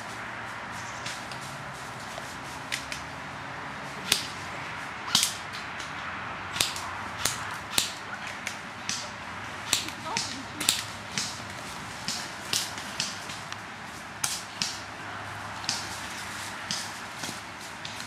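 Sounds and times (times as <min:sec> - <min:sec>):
airsoft gun shots: 0:06.6 - 0:11.4.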